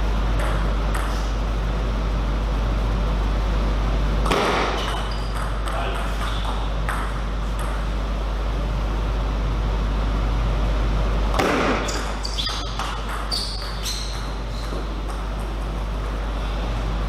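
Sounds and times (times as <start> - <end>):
steady low hum: 0.0 - 17.0
table tennis ball bouncing: 0.3 - 1.3, 4.2 - 8.0, 11.3 - 16.3.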